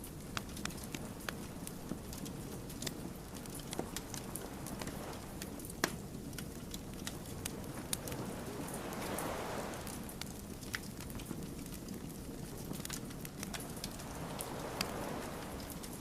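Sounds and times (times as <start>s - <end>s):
wood fire crackling: 0.0s - 16.0s
soft hiss: 13.3s - 16.0s.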